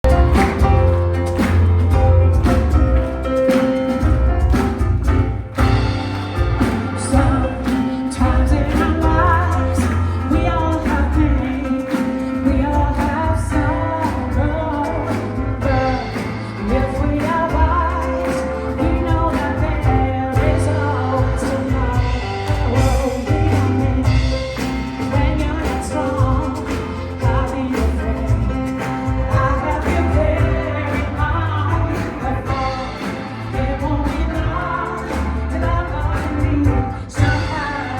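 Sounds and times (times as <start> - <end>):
soul band playing: 0.0 - 37.9
woman singing: 6.6 - 37.9.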